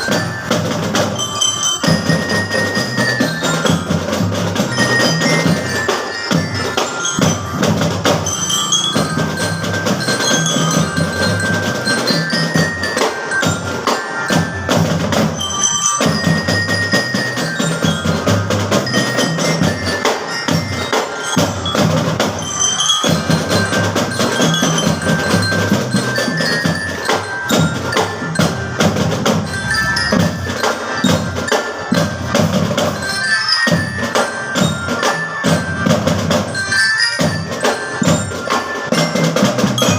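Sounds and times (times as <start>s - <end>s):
glockenspiel melody: 0.0s - 39.9s
marching drums: 0.0s - 39.9s.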